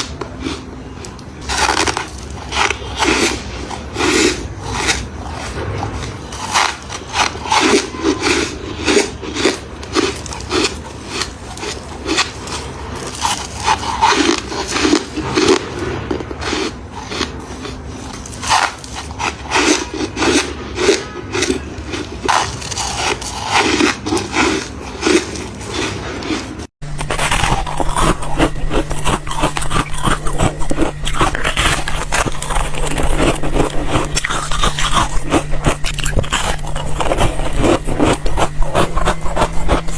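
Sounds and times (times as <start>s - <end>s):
steady low hum: 0.0s - 39.9s
crisp crunching of frost: 0.4s - 15.8s, 16.4s - 39.9s.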